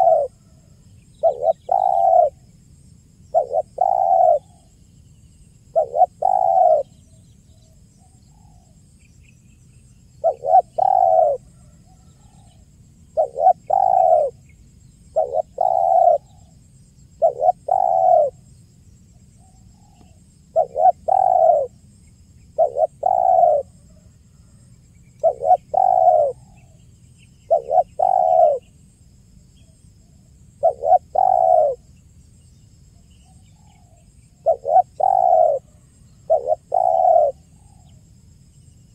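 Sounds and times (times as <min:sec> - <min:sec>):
dove cooing: 0:00.0 - 0:00.6, 0:01.2 - 0:02.5, 0:03.3 - 0:04.7, 0:05.7 - 0:07.0, 0:10.2 - 0:14.4, 0:15.1 - 0:18.4, 0:19.4 - 0:21.8, 0:22.5 - 0:24.6, 0:25.2 - 0:26.8, 0:27.5 - 0:28.7, 0:30.6 - 0:31.8, 0:33.5 - 0:37.9
faint bird chirps: 0:00.0 - 0:02.7, 0:03.3 - 0:38.9.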